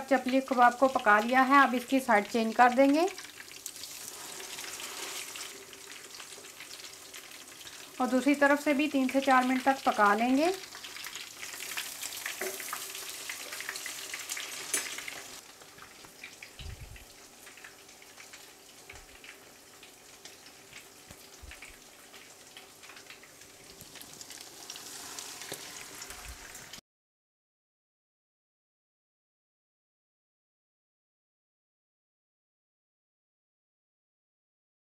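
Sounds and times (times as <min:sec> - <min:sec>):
meat sizzling in hot oil: 0:00.0 - 0:26.8.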